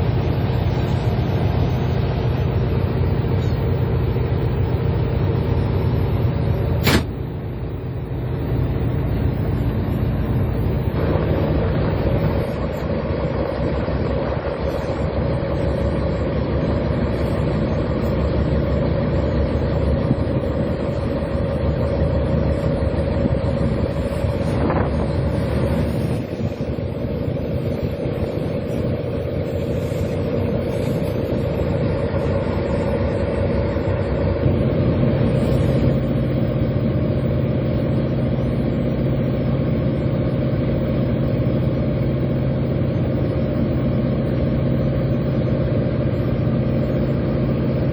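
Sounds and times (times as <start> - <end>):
boat engine droning: 0.0 - 47.9
short sharp click: 6.8 - 7.2.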